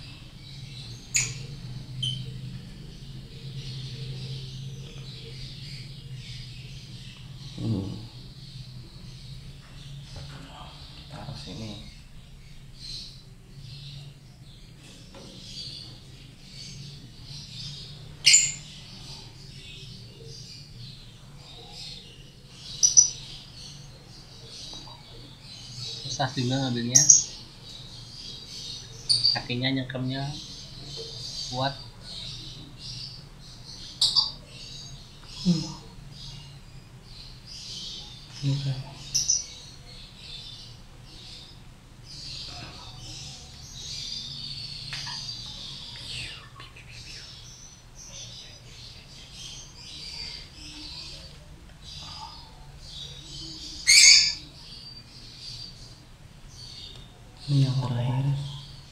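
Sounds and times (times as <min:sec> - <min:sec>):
lovebirds chirping raspy calls: 0:00.0 - 0:58.9
sharp shrill bird calls: 0:53.9 - 0:54.4.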